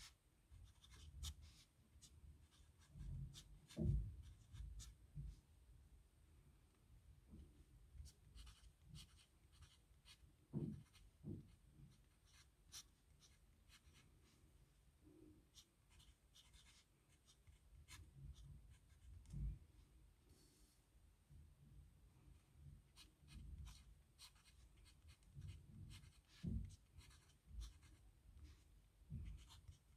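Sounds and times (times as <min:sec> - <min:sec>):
pen scratching on paper: 0:08.4 - 0:10.2, 0:10.8 - 0:11.0, 0:15.6 - 0:19.3, 0:23.0 - 0:28.0, 0:29.2 - 0:29.9.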